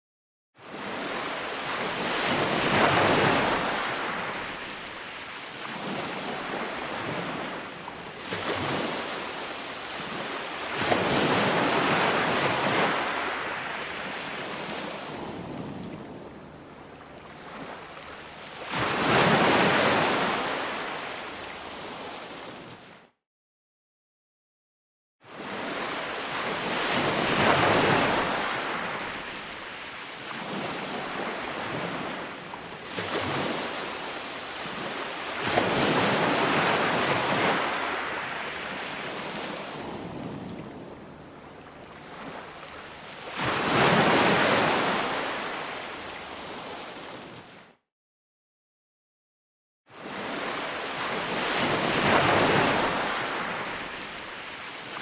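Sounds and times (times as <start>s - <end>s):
ocean waves breaking on shore: 0.6s - 23.1s, 25.2s - 47.8s, 49.9s - 55.0s.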